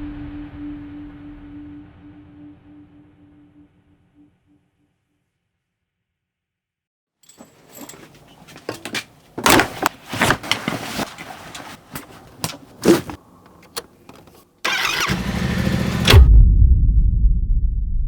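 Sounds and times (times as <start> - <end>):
motorcycle engine starting and running: 12.8 - 16.3.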